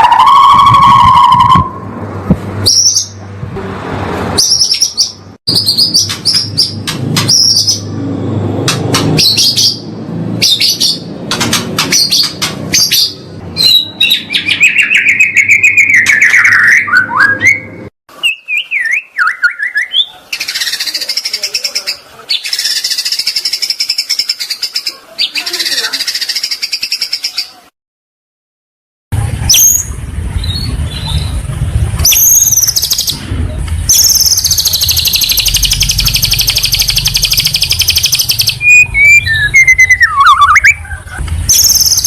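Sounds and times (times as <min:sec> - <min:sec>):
songbird singing: 0:04.4 - 0:08.0, 0:09.0 - 0:27.6, 0:29.5 - 0:33.2, 0:33.9 - 0:42.0.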